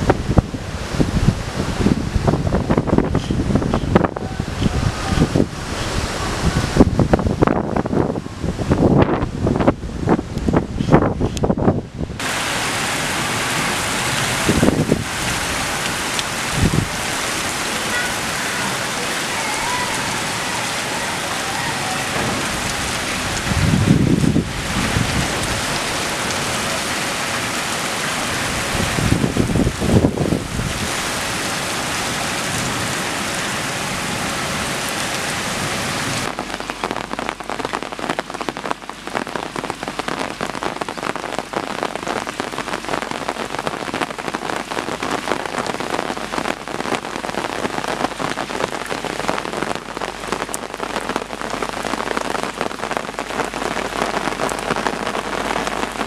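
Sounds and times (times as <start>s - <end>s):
heavy rain pouring: 0.0s - 56.0s
raindrops pattering on a surface: 8.8s - 56.0s
low rumble: 22.0s - 25.9s.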